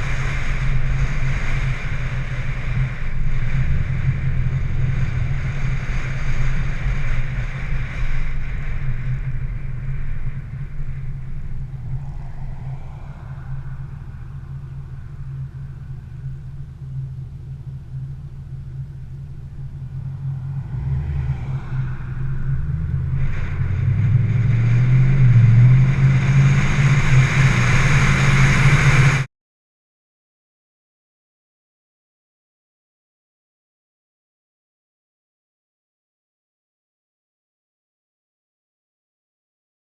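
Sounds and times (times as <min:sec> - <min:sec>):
car engine running: 0:00.0 - 0:29.3.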